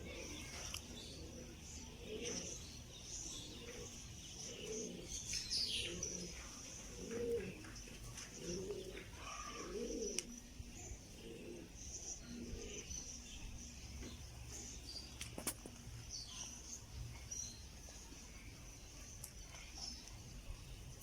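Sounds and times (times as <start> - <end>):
pigeons cooing: 0.0 - 14.7
small birds chirping: 0.0 - 21.0.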